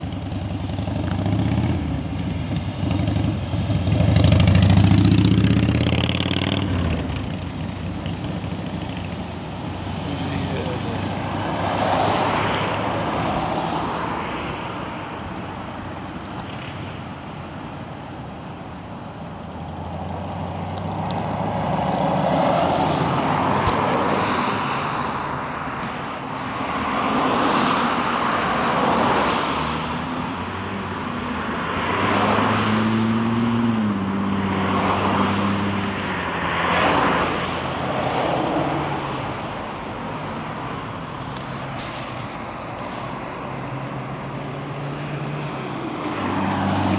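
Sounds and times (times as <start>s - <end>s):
engine hum: 0.0s - 46.9s
vehicles passing: 0.0s - 46.9s.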